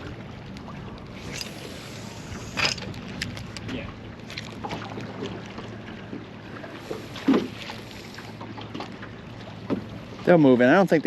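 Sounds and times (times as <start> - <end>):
boat engine hum: 0.0 - 11.0.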